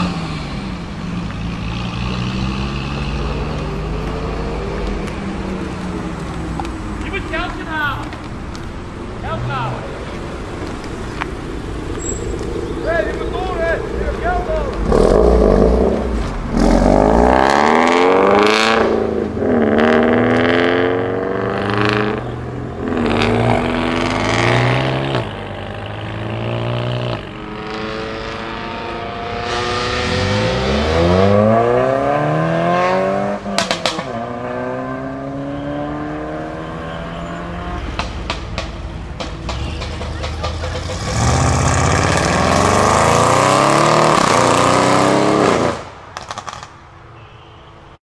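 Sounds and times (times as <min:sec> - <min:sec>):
exhaust crackle: 0:00.0 - 0:27.7
car engines revving: 0:00.0 - 0:46.9.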